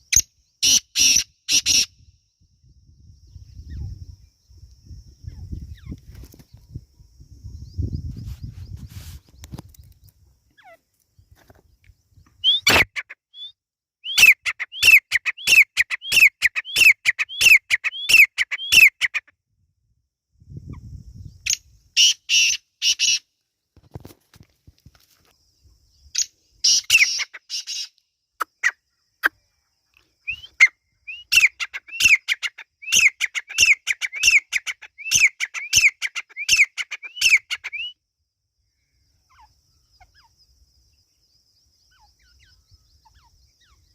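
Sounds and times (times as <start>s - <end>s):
harsh raspy bird notes: 12.4s - 19.2s
bird calling sharp notes: 12.4s - 19.3s, 26.6s - 29.4s.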